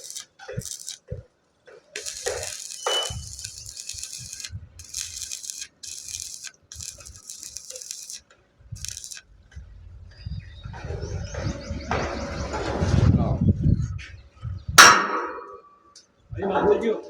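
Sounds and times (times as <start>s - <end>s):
welding arc crackling: 0.0s - 1.0s, 2.0s - 9.2s.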